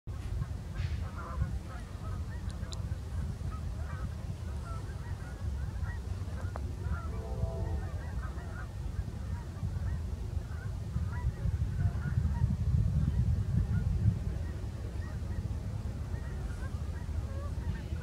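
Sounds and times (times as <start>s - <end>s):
distant freight train rumbling: 3.7s - 10.5s.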